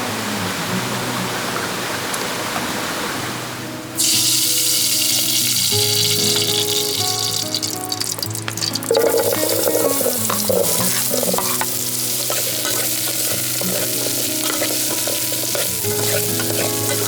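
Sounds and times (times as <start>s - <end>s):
soft background music: 0.0s - 17.0s
food sizzling in a pan: 4.0s - 17.0s.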